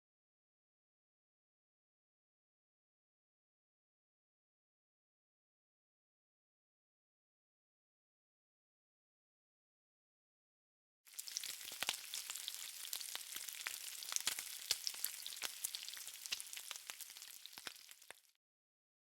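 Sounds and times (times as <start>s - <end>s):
crackling hiss with pops: 11.2s - 18.3s.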